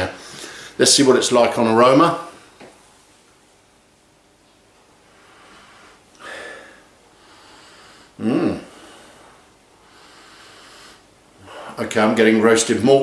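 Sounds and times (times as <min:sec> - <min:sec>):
faint breathing: 0:00.2 - 0:00.8, 0:05.0 - 0:11.8
man sniffing: 0:05.3 - 0:09.2
man humming through nose: 0:08.2 - 0:08.9.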